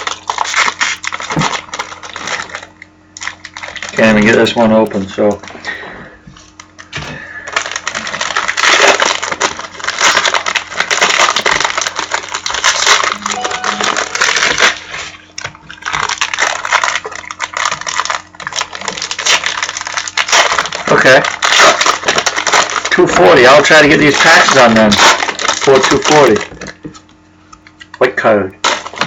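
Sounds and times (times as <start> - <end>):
wrappers tearing and crinkling: 0.0 - 5.6, 6.5 - 27.1, 28.6 - 29.0.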